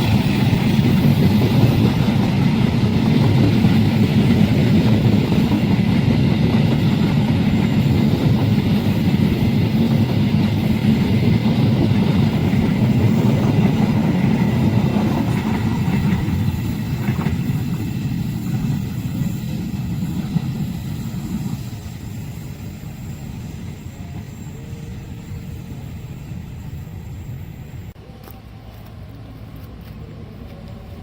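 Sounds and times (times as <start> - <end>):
train wheel clicks: 0.0 - 21.7
train rumbling past: 0.0 - 31.0.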